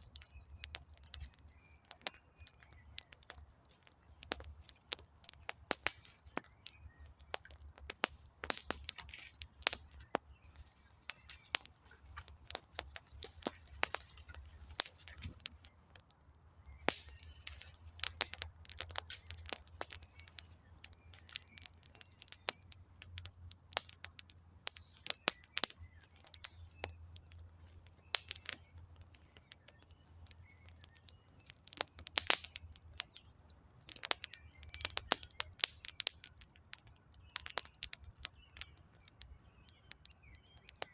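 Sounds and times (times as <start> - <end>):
campfire crackling and popping: 0.0 - 40.9
fire low rumble: 0.0 - 40.9.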